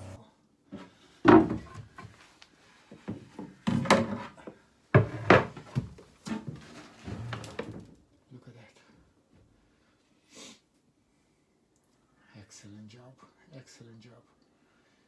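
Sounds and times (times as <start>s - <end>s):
irregular knocks and thuds: 1.2s - 2.2s, 5.0s - 7.8s.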